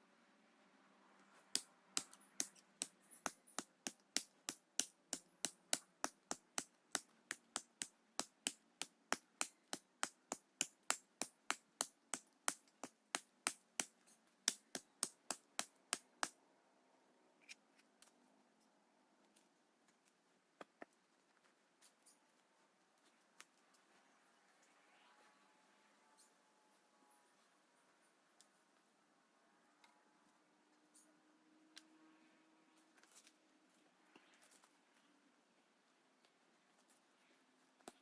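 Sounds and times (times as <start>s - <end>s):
sharp evenly spaced knocks: 1.5s - 16.4s.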